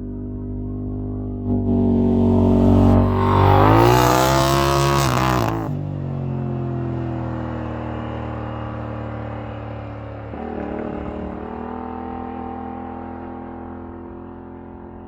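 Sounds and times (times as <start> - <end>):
car engine revving: 1.5 - 5.8.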